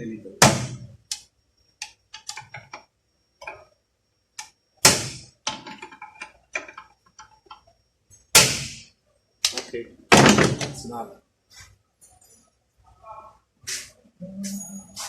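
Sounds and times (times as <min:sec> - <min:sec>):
metal parts clicking and knocking: 0:01.8 - 0:02.8, 0:05.4 - 0:07.7.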